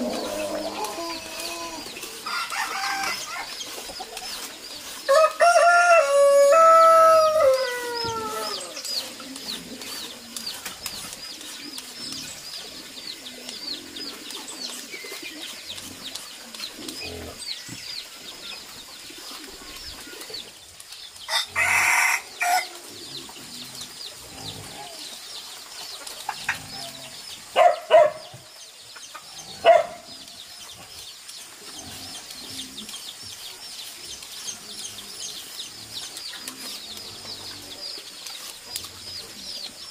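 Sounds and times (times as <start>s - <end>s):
rooster crowing: 2.2s - 3.5s, 5.1s - 8.7s, 21.3s - 22.7s.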